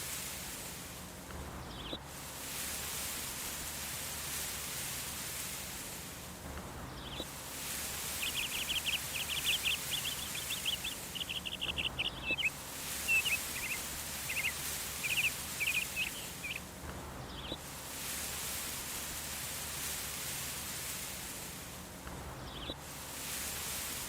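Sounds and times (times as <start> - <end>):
outdoor hiss: 0.0 - 24.0
songbird trilling: 7.8 - 16.7.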